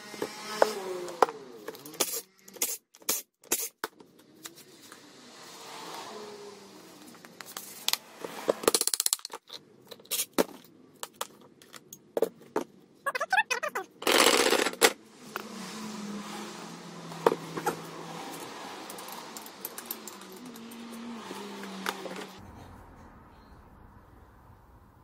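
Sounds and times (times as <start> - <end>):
metal parts and tools clicking: 8.6 - 10.4, 13.1 - 15.0, 17.6 - 22.4.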